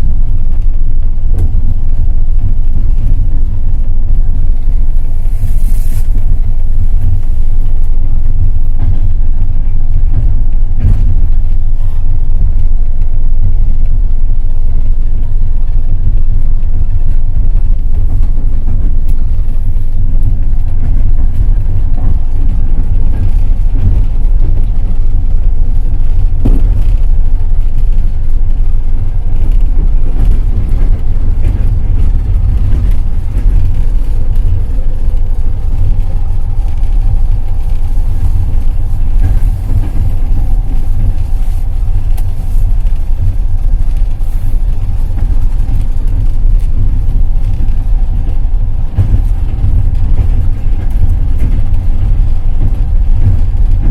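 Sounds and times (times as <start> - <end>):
train wheels rumbling on rails: 0.0 - 53.9
train knocks: 26.3 - 27.2, 48.1 - 53.9.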